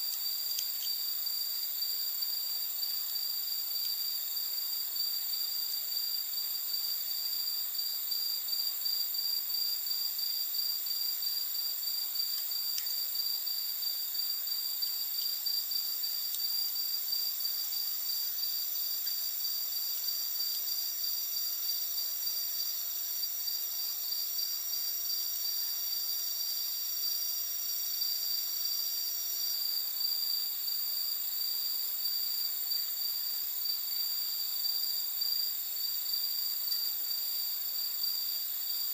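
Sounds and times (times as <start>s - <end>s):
faint campfire crackles: 0.0s - 26.0s
night insects trilling: 0.0s - 38.9s.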